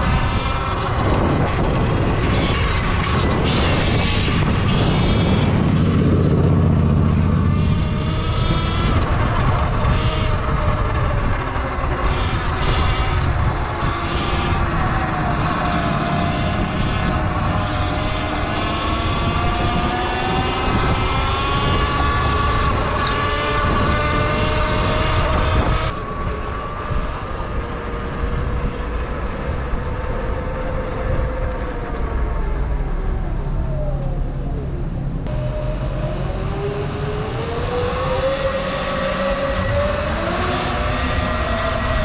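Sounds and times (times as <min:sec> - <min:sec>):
electric dirt bike motor whining: 0:00.0 - 0:28.8
steady low rumble: 0:04.3 - 0:07.9, 0:25.9 - 0:37.0.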